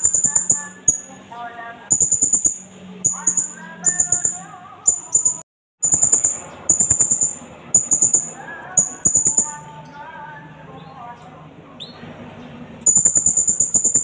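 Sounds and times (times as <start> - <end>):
parrot calling shrill notes: 1.9 - 9.6.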